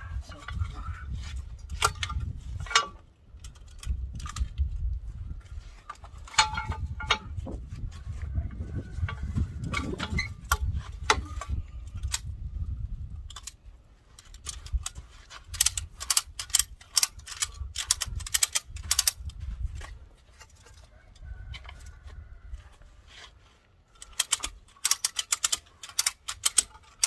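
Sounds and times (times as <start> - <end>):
ratchet strap clicking: 14.2 - 19.4, 24.0 - 27.0.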